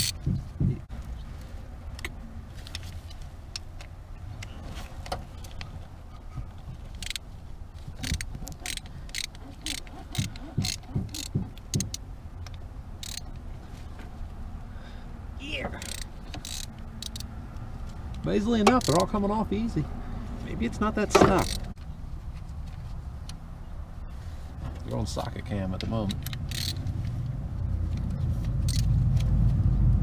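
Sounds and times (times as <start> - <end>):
socket ratchet clicking: 0.0 - 0.3, 7.0 - 7.2, 8.0 - 12.0, 13.0 - 13.3, 15.8 - 17.3, 18.7 - 19.1, 21.4 - 21.7, 26.1 - 26.9, 28.6 - 28.9
sharp metallic ticks: 0.0 - 0.5, 8.0 - 13.4, 15.8 - 17.3, 18.1 - 19.3, 25.8 - 26.9, 28.6 - 29.0.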